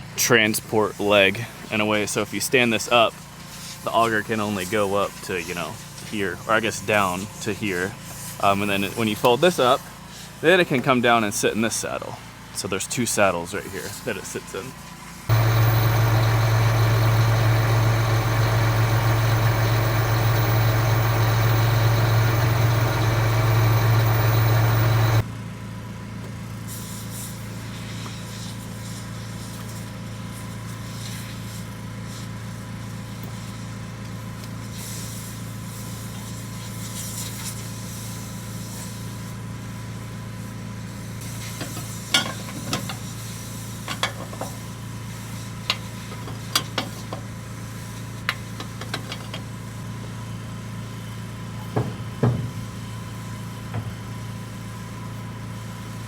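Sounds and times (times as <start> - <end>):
diesel engine running: 15.3 - 25.2
quiet steady hum: 15.3 - 25.2
sharp clicks: 15.3 - 25.2.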